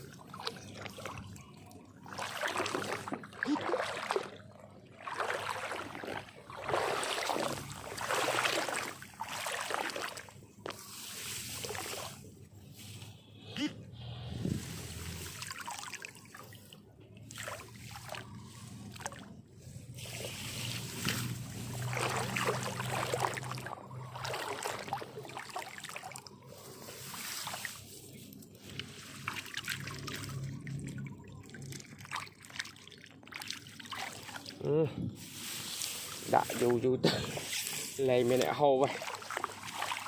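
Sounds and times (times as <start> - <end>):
water trickling and splashing: 0.0 - 13.1, 14.4 - 40.0.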